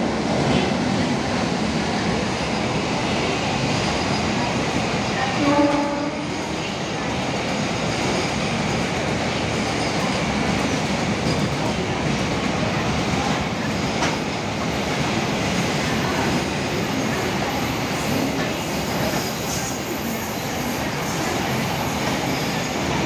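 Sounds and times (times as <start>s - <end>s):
train horn: 5.3s - 6.4s.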